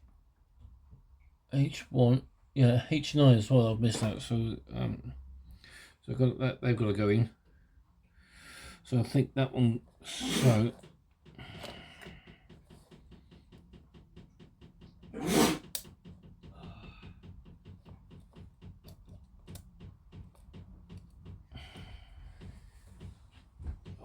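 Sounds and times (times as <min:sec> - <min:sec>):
plastic parts clicking and tapping: 0:10.7 - 0:24.0.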